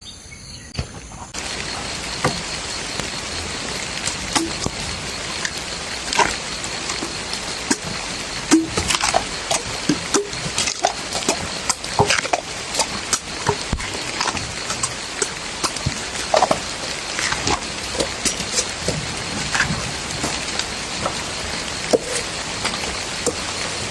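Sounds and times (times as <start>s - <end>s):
steady rain falling: 1.4s - 23.9s
water drips: 1.4s - 23.9s.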